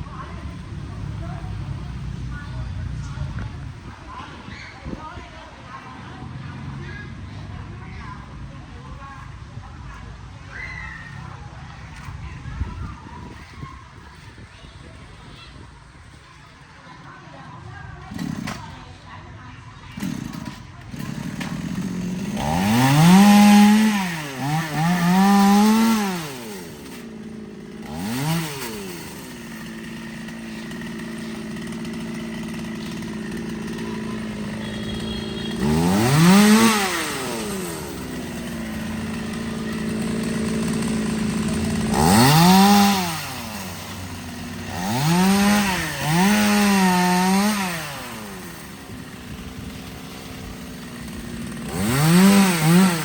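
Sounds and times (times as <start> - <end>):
chainsaw revving: 18.0 - 19.1, 19.9 - 53.0.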